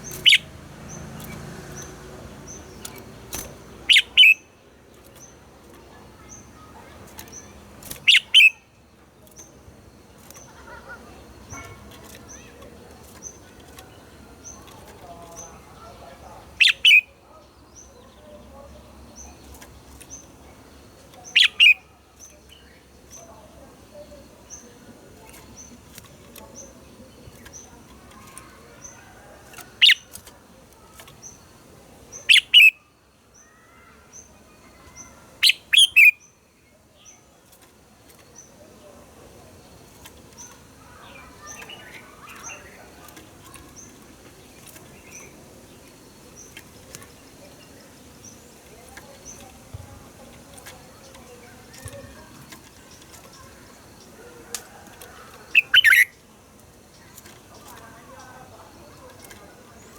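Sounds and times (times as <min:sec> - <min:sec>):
bird singing sharp notes: 0:00.0 - 0:09.5, 0:16.4 - 0:17.2, 0:21.1 - 0:23.2, 0:32.1 - 0:32.9, 0:34.8 - 0:36.4, 0:39.9 - 0:56.3.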